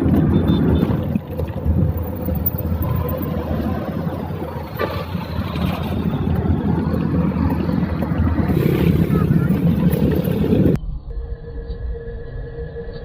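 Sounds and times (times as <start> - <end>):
vehicle engine and tyre rumble: 0.0 - 10.8.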